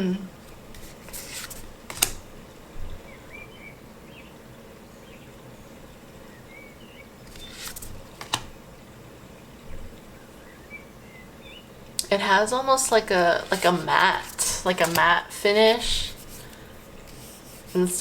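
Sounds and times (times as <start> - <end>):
cards sliding swish: 0.7 - 2.2, 7.3 - 8.5
card snap: 0.8 - 2.2, 7.3 - 8.5, 14.2 - 15.1.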